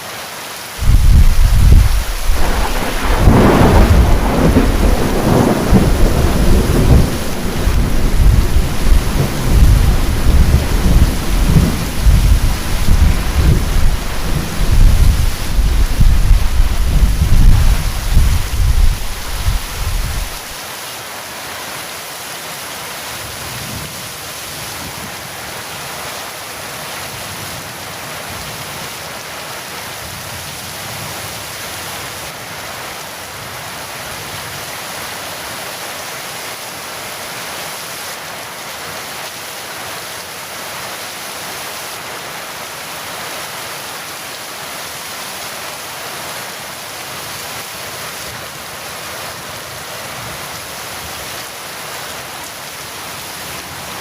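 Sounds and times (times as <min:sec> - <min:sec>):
heavy rain pouring: 0:00.0 - 0:54.0
thunder rumble: 0:00.8 - 0:20.5.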